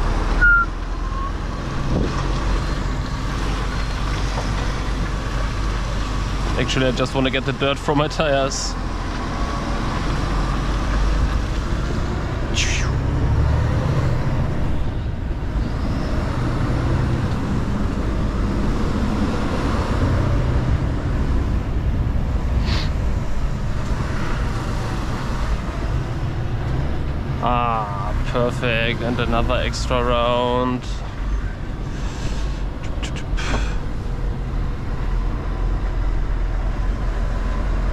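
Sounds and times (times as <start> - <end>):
truck diesel engine rumbling: 0.0 - 37.9
short air hisses: 22.6 - 23.0.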